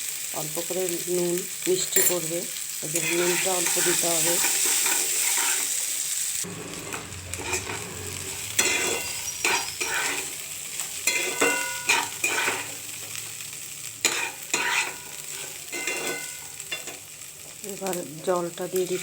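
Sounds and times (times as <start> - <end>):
rice sizzling in oil: 0.0 - 19.0
spoon scraping and knocking pot: 8.6 - 10.3, 11.1 - 12.7.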